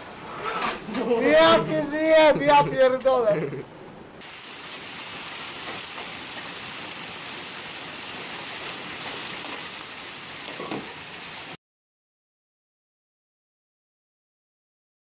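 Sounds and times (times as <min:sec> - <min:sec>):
steady rain: 0:04.2 - 0:11.6.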